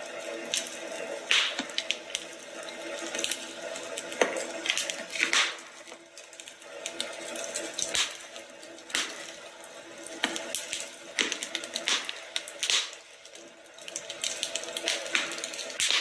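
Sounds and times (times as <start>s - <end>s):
wood fire crackling: 0.0s - 16.0s
sharp fire pops: 0.5s - 2.4s, 4.2s - 5.9s, 7.8s - 9.4s, 10.2s - 13.3s, 14.1s - 16.0s.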